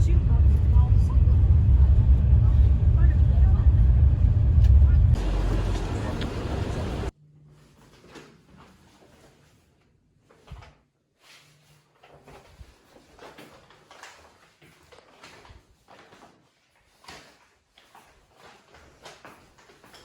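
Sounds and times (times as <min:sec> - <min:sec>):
rustling of objects handled: 0:07.6 - 0:20.0.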